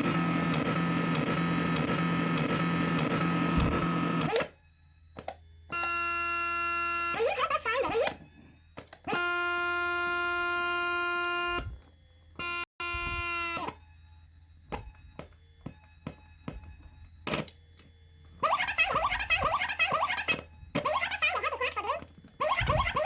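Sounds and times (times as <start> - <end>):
buzzy electronic drone: 5.8 - 13.8.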